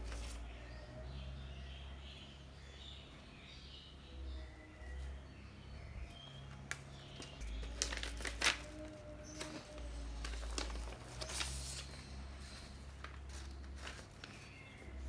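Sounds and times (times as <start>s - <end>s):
rustling of handled objects: 0.0s - 0.5s, 6.7s - 15.0s.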